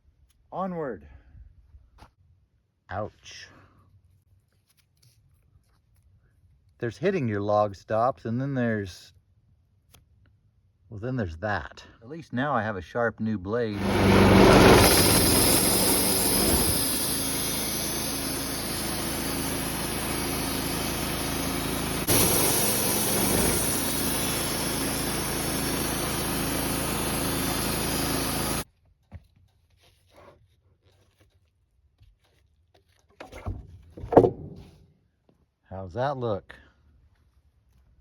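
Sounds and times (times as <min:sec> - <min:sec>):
bandsaw mill sawing log: 0:13.8 - 0:28.7.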